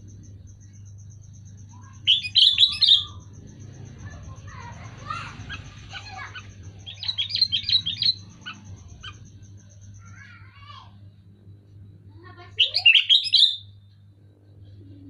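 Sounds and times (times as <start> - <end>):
bulbul chirping calls: 0.0 - 10.7, 12.4 - 13.8
low hum: 0.0 - 12.9, 13.6 - 15.0.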